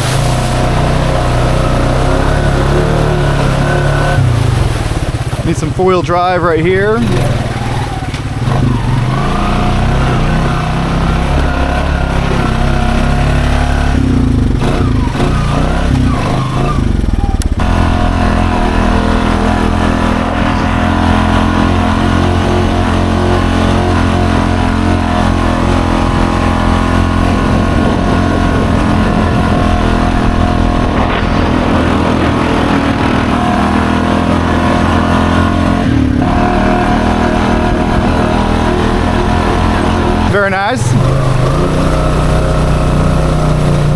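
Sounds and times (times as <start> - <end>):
atv engine revving: 0.0 - 43.9.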